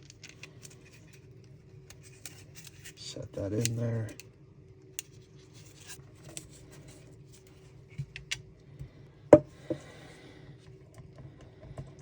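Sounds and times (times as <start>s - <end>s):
plastic parts clicking and rubbing: 0.0s - 1.2s.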